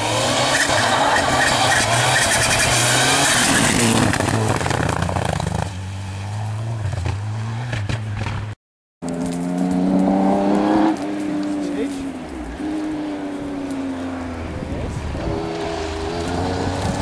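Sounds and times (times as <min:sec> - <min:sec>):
rally car engine passing at speed: 0:09.0 - 0:17.0.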